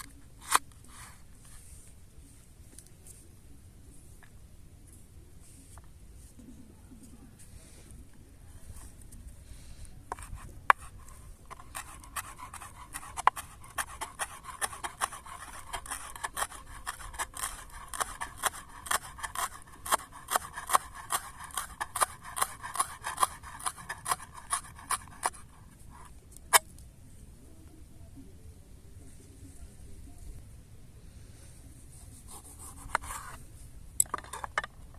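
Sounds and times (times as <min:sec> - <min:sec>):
hand tool scraping strokes: 0:10.1 - 0:26.6.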